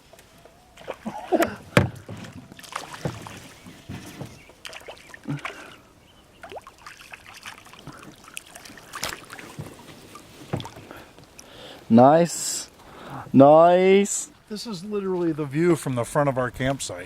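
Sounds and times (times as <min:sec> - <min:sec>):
water splashing: 0:00.8 - 0:11.6
knocks on a boat: 0:01.7 - 0:04.4.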